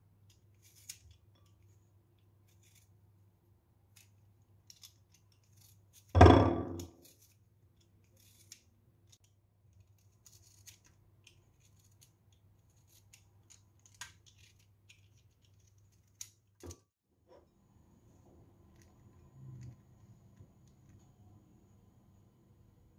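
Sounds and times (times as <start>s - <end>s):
loud knock with ringing: 6.2s - 6.8s.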